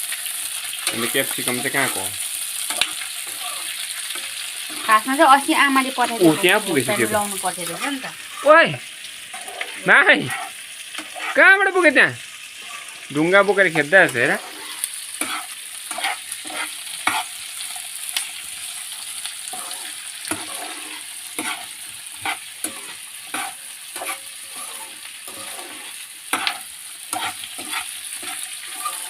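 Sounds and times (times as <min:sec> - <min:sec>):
vegetables sizzling in pan: 0:00.0 - 0:29.0
spatula scraping and knocking pan: 0:00.8 - 0:03.4, 0:04.0 - 0:08.4, 0:09.3 - 0:11.4, 0:14.0 - 0:17.5, 0:19.4 - 0:29.0.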